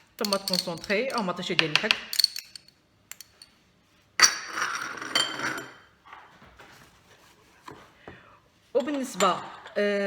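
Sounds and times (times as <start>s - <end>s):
spoon scraping and clinking: 0.0s - 3.5s, 4.2s - 5.8s.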